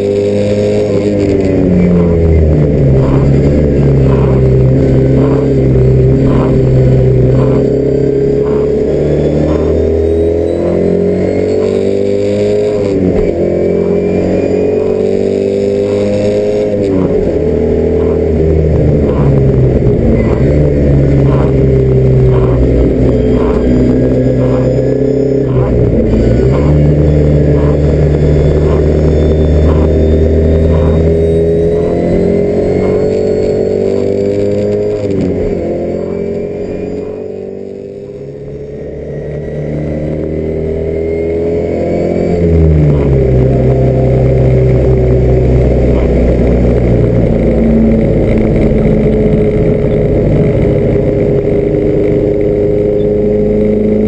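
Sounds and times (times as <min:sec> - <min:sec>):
car engine under load: 0:00.0 - 0:54.0.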